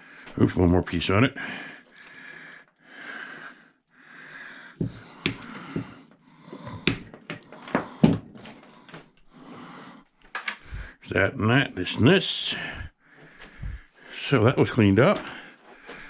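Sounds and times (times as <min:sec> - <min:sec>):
heavy breathing: 0:00.0 - 0:00.5, 0:01.3 - 0:14.4, 0:15.2 - 0:16.0
metal scrap clicking and knocking: 0:10.3 - 0:10.7.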